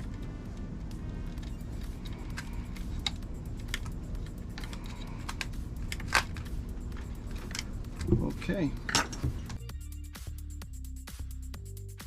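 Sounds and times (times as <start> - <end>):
low steady hum: 0.0 - 9.8
small parts clicking and tapping: 1.2 - 9.6.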